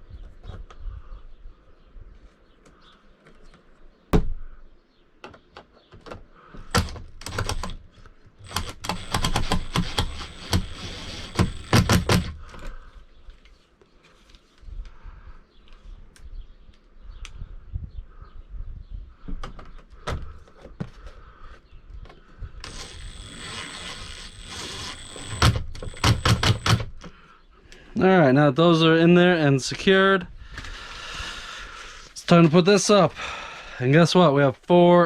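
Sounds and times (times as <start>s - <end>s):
rattling clicks: 8.4s - 12.7s, 22.6s - 27.1s.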